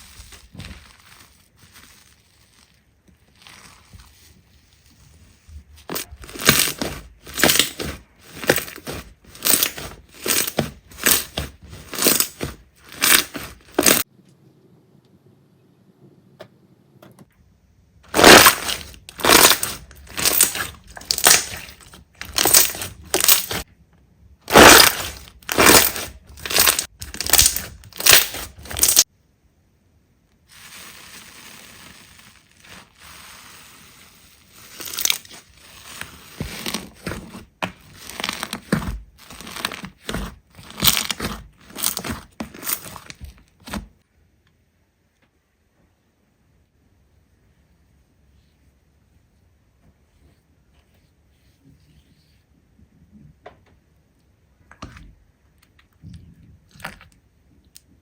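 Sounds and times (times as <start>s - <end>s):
slime being squeezed: 6.0s - 14.0s, 18.1s - 23.6s, 24.5s - 29.0s.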